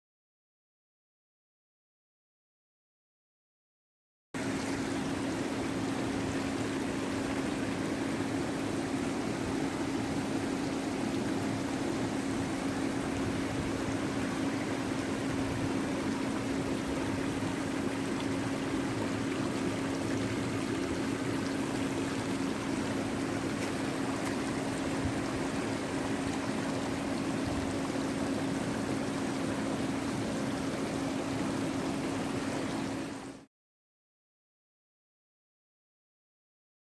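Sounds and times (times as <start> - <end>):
flowing water rushing: 4.4 - 33.5.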